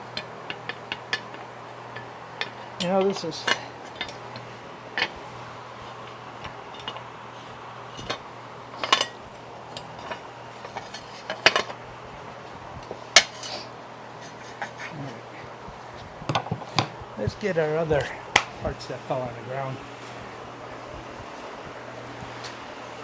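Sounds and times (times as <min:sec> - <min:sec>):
steady low hum: 0:00.0 - 0:23.0
metal tools clinking: 0:00.5 - 0:05.2, 0:06.0 - 0:11.8.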